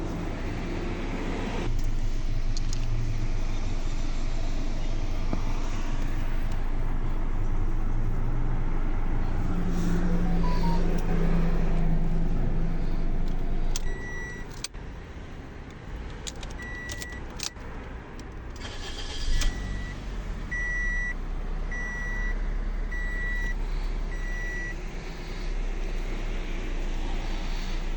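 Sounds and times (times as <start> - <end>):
car engine idling: 0.0 - 27.9
dashboard warning chime beeping: 10.2 - 11.3, 13.8 - 14.5, 16.6 - 17.2
key and ignition switch clicks: 13.2 - 14.8, 16.1 - 17.6.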